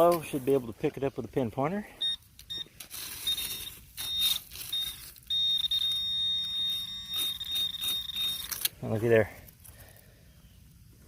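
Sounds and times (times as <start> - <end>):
metal detector pinpointer beeping: 2.0 - 8.7.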